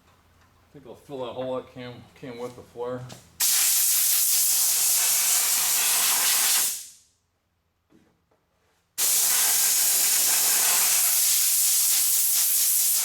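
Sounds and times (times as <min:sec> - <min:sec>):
heat gun blowing: 0:03.4 - 0:07.0, 0:09.0 - 0:13.0.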